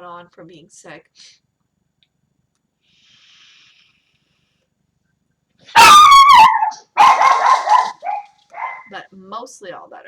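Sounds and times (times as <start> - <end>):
dog barking: 5.7 - 8.9.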